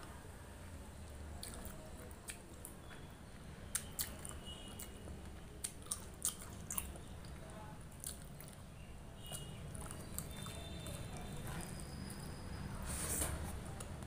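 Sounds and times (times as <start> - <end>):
wet chewing and squishing: 1.4 - 3.1, 3.7 - 12.2.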